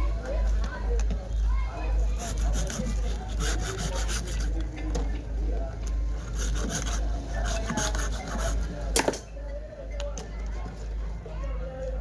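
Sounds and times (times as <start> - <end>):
steady low hum: 0.0 - 9.0
hand rubbing strokes: 2.1 - 4.6, 6.1 - 8.8.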